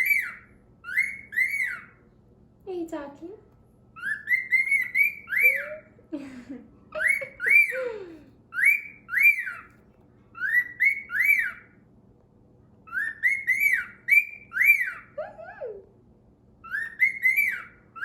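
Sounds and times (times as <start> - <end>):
cockatiel whistling a tune: 0.0 - 2.0, 4.0 - 5.8, 7.0 - 7.8, 8.5 - 9.7, 10.3 - 11.8, 12.8 - 15.2, 16.6 - 18.0.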